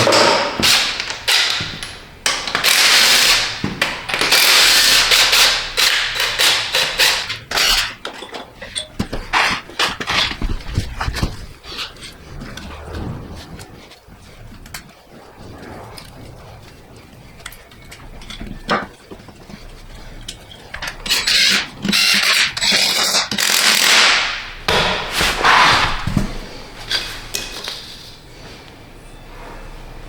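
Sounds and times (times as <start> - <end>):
loud rasping bursts: 0.6 - 8.0.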